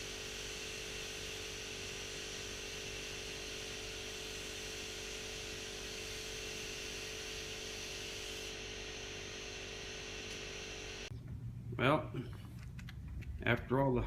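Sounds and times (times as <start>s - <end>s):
compressed-air spray equipment hissing: 0.0s - 8.6s.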